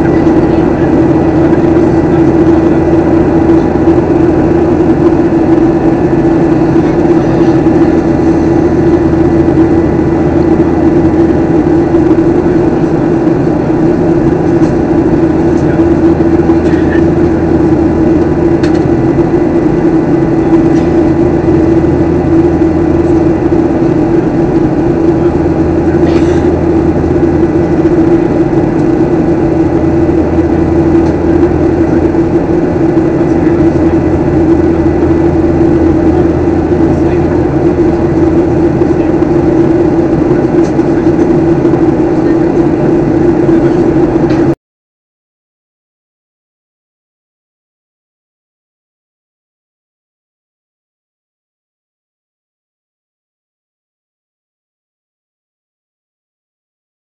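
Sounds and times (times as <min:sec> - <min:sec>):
airliner cabin engine drone: 0:00.0 - 0:44.6.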